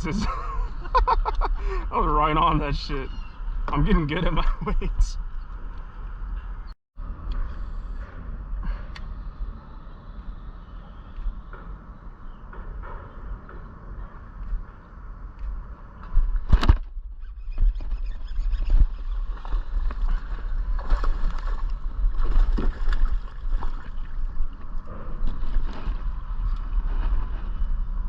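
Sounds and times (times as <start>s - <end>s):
steady low rumble: 0.0s - 28.0s
water sloshing against boat hull: 17.5s - 27.8s.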